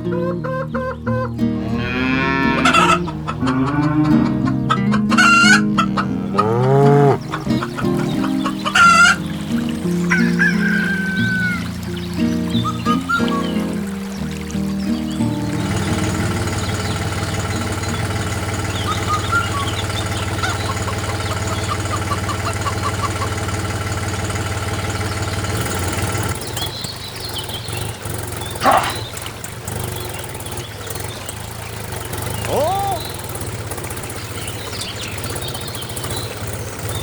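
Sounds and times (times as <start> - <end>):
birds chirping: 0.0 - 37.0
motor humming: 1.6 - 37.0
short call: 32.4 - 33.2.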